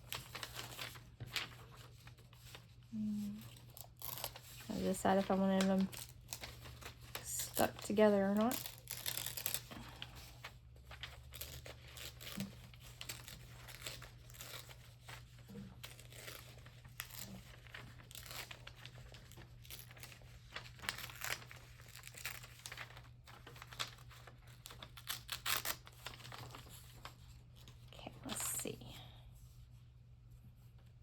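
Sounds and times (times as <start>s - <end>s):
paper crinkling: 0.0s - 28.6s
paper tearing: 3.2s - 10.3s, 10.9s - 26.9s.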